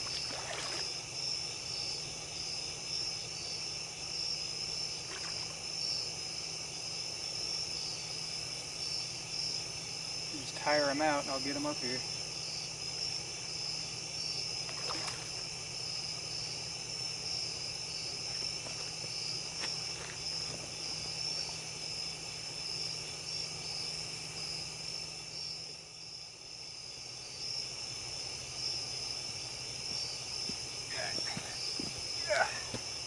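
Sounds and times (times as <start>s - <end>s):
insects trilling: 0.0s - 33.0s
low steady hum: 0.0s - 33.0s.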